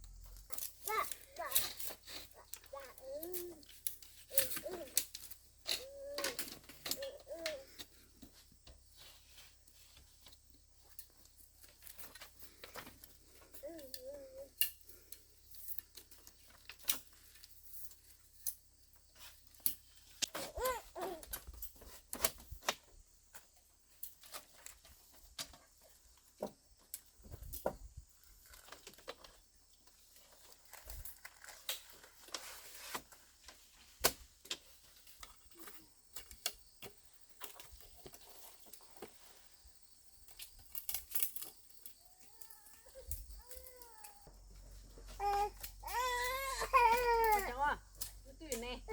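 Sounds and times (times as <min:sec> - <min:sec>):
rustling: 0:00.0 - 0:48.9
baby whimpering: 0:45.1 - 0:47.4.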